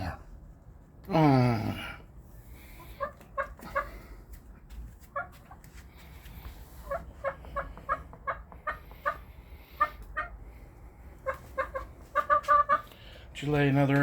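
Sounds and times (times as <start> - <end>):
hen clucking: 2.6 - 13.3.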